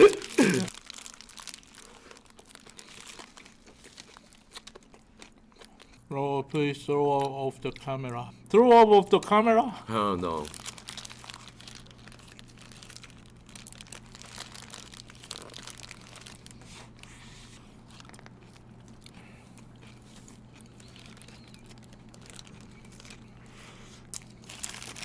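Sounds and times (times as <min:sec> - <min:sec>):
paper wrappers crinkling: 0:00.0 - 0:05.1, 0:10.2 - 0:25.0
chewing and biting: 0:00.7 - 0:06.0, 0:10.7 - 0:25.0.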